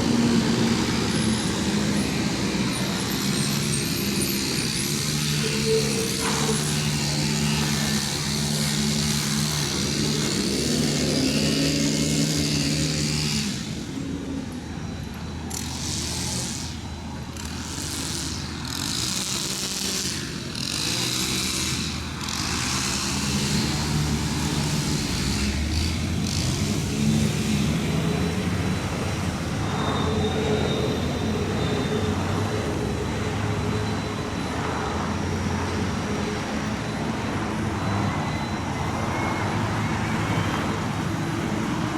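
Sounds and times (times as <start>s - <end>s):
rough noisy bursts: 0.0s - 14.0s
excavator diesel engine under load: 0.0s - 41.9s.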